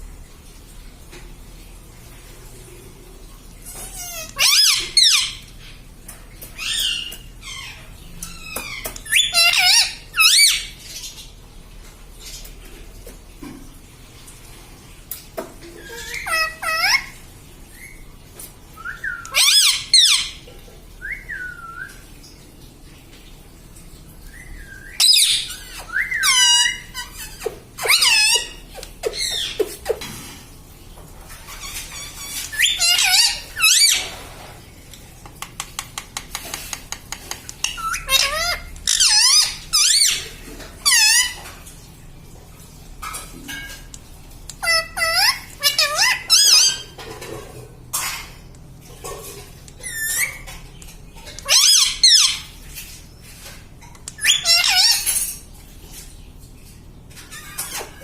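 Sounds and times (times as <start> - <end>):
parrot squawking and chirping: 3.6 - 5.8, 6.5 - 11.2, 15.6 - 18.0, 18.8 - 22.0, 24.4 - 30.2, 31.4 - 34.4, 36.2 - 41.6, 44.5 - 47.3, 47.9 - 48.4, 49.0 - 52.9, 53.8 - 55.4, 57.2 - 58.0.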